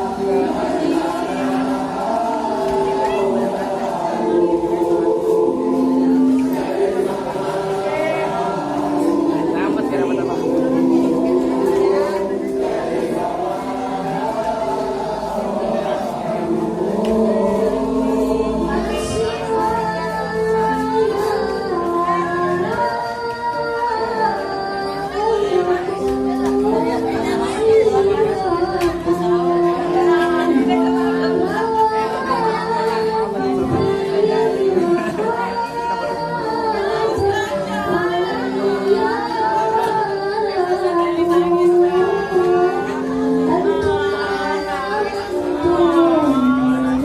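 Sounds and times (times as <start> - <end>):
voices singing together: 0.0 - 47.0.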